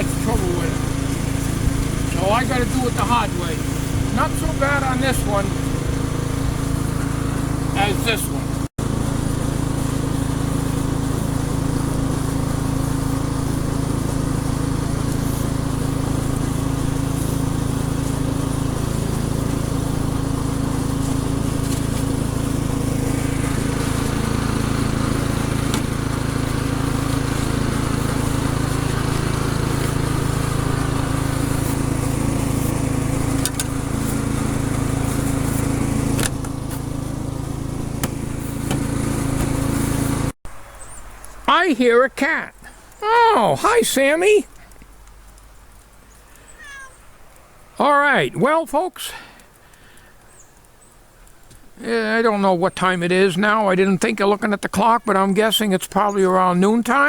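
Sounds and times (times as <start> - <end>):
engine running steadily: 0.0 - 41.4.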